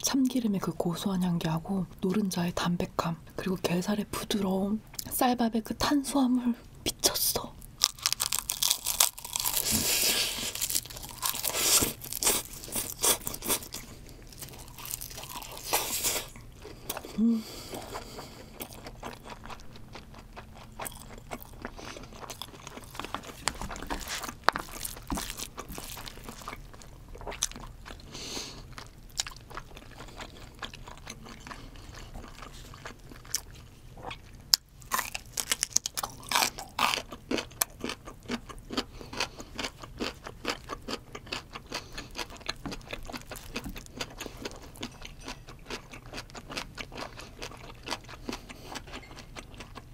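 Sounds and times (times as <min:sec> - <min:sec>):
crisp crunching: 0:07.8 - 0:16.4, 0:20.8 - 0:27.6, 0:34.8 - 0:37.5
soft wet chewing: 0:07.8 - 0:49.9.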